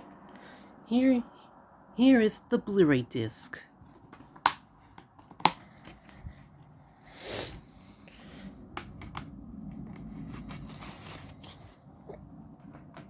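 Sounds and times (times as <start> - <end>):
plastic case rustling slide: 9.7 - 12.0.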